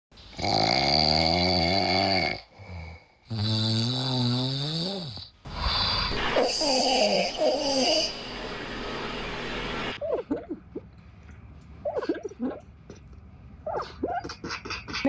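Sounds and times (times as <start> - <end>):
dog snoring: 0.3 - 8.2.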